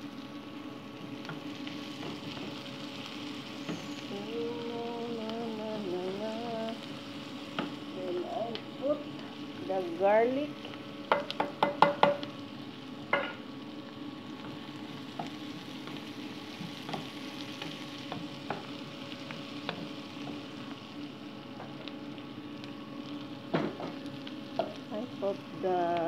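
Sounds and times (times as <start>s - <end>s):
onion and garlic sizzling: 0.0s - 26.0s
wooden spoon stirring in a pan: 1.0s - 4.1s, 10.5s - 12.4s, 14.2s - 22.1s.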